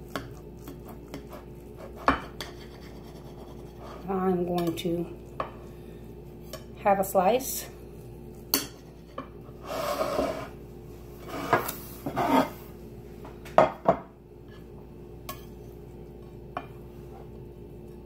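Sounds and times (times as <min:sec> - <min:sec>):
utensils scraping a baking pan: 0:01.1 - 0:04.6, 0:08.6 - 0:10.6, 0:11.2 - 0:12.6.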